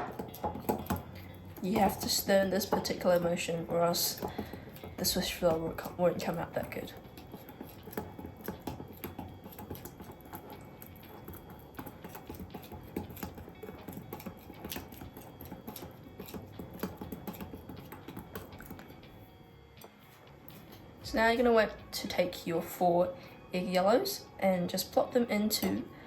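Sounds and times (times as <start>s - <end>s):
whisk clicking against bowl: 0.0s - 18.8s.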